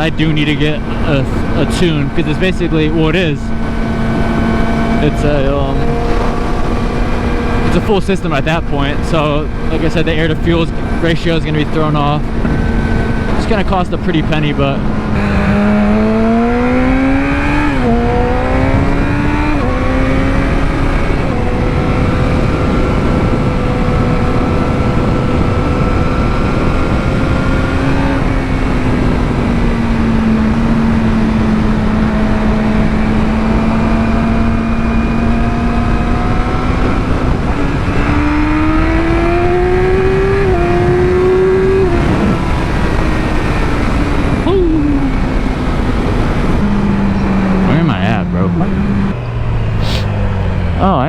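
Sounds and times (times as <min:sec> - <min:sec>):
wind rush on microphone: 0:00.0 - 0:47.9
gear changes: 0:00.0 - 0:51.0
motorcycle engine accelerating: 0:00.0 - 0:51.0.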